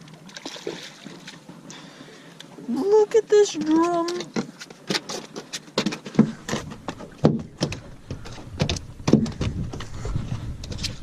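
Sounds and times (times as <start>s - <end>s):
knocks and thumps on boat: 3.5s - 11.0s.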